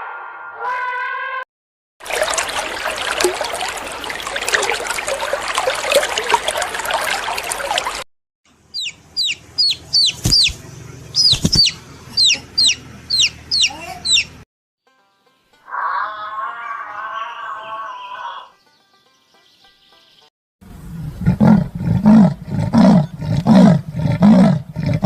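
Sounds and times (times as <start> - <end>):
chick peeping: 8.7 - 10.6, 11.2 - 14.4
chickens clucking: 8.8 - 14.4
loud thumps: 10.1 - 10.6.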